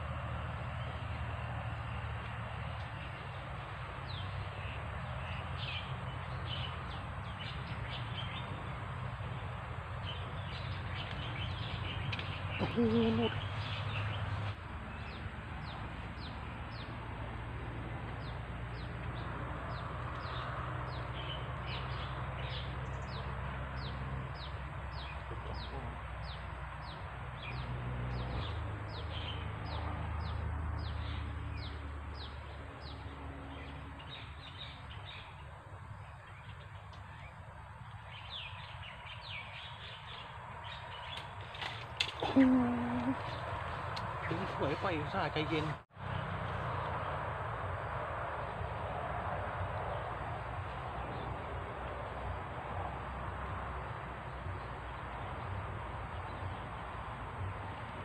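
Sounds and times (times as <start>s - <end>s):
bird high downward call: 12.5s - 14.0s
bird clucking call: 12.6s - 13.5s.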